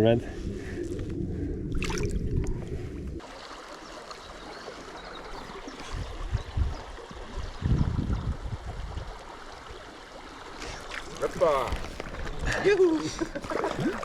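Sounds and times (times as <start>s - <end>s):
river running over stones: 3.2s - 7.3s, 9.0s - 14.0s.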